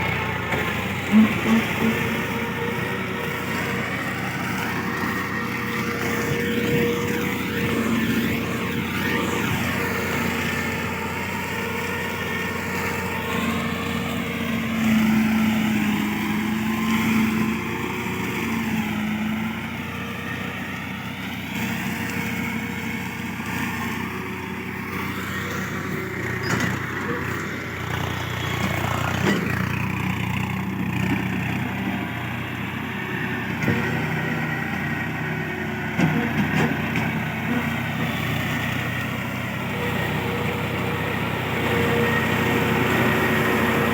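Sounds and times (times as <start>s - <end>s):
tractor mulcher engine droning: 0.0s - 43.9s.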